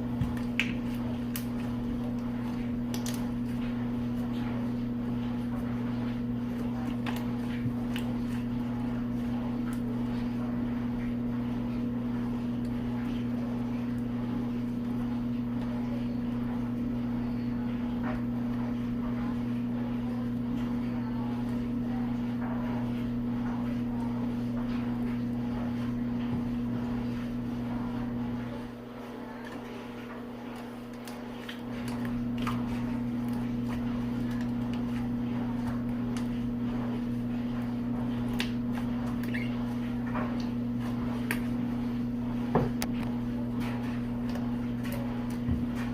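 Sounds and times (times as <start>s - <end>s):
electric appliance hum: 0.0s - 45.9s.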